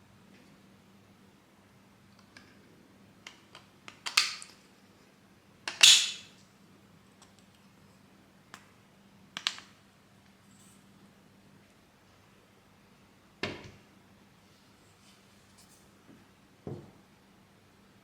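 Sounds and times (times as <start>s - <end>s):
plastic parts clicking: 3.3s - 4.6s.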